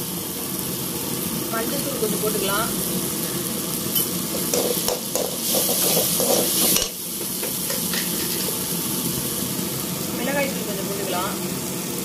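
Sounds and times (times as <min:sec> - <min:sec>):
masala sizzling in a pan: 0:00.0 - 0:12.0
ladle scraping a pan: 0:04.3 - 0:06.9, 0:07.7 - 0:08.6.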